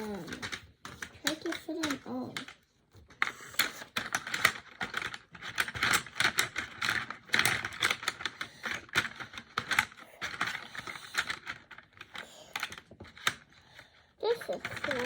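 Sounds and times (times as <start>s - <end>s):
pencils clattering together: 0.0s - 15.0s.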